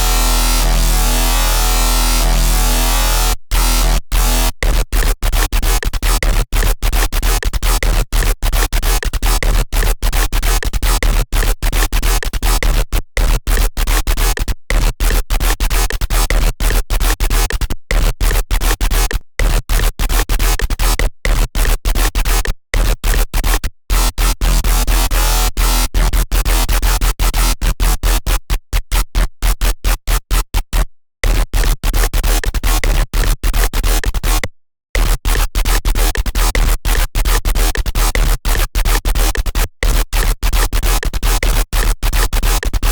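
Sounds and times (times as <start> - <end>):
deep synth bass: 0.0 - 4.6
harsh stuttering synthesizer stabs: 0.0 - 4.6.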